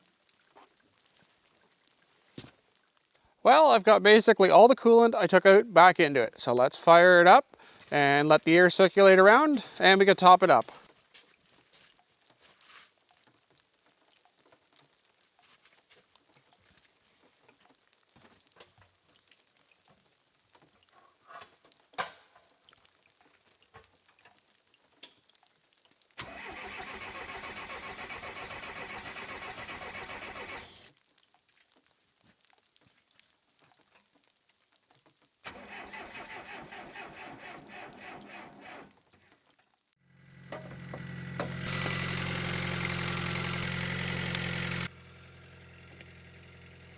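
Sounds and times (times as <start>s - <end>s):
diesel engine cranking: 6.8s - 10.6s, 26.2s - 30.9s, 35.5s - 38.9s, 40.1s - 46.9s
diesel engine running: 26.3s - 30.9s, 40.0s - 46.9s.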